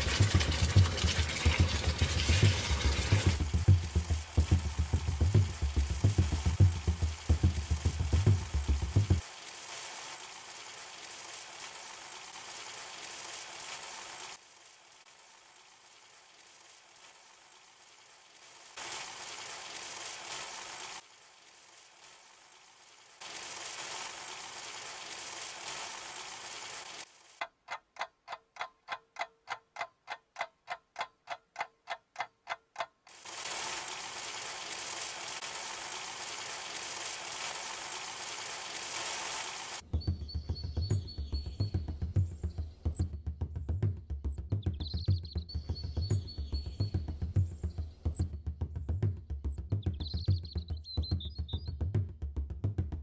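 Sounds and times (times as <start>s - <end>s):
clock-like ticking: 0.0s - 9.2s, 27.4s - 33.2s
chicken sizzling in a wok: 0.0s - 27.4s, 33.1s - 42.7s.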